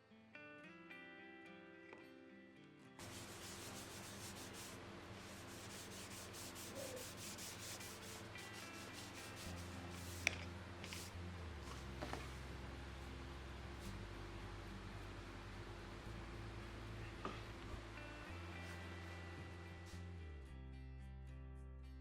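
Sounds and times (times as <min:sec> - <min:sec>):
sandpaper rubbing wood: 0:03.0 - 0:11.1.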